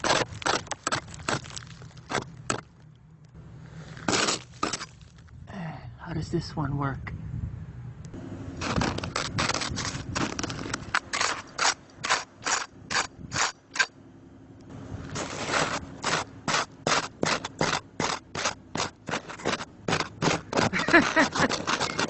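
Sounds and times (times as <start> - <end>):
tool scraping icy snow: 0.0 - 2.6, 3.6 - 5.1, 8.5 - 13.9, 15.0 - 22.0.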